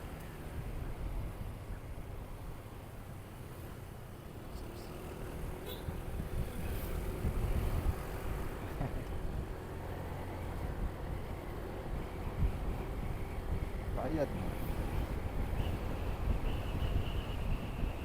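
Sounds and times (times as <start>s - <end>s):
wind buffeting microphone: 6.0s - 9.6s, 10.4s - 18.0s.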